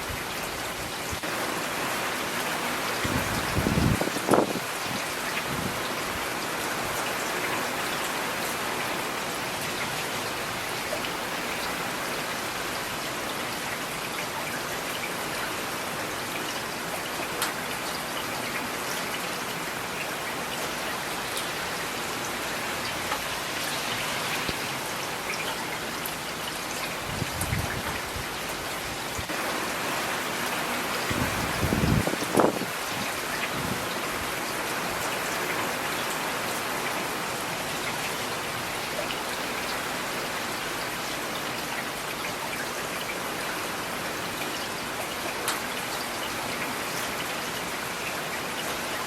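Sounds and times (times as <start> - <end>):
steady rain falling: 0.0 - 49.0.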